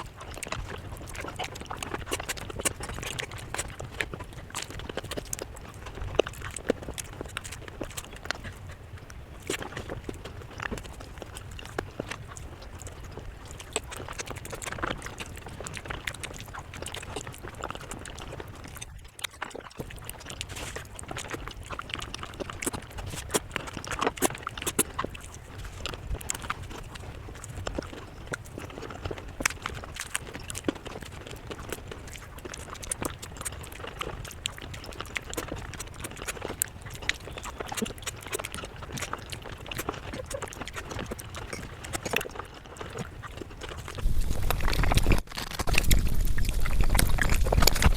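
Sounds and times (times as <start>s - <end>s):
chewing and mouth clicks: 0.0s - 47.9s
steady low hum: 44.0s - 47.9s.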